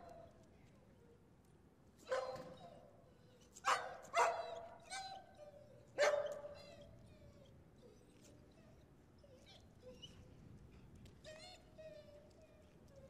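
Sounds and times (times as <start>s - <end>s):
dog barking: 2.1s - 2.5s, 3.7s - 4.6s, 6.0s - 6.4s.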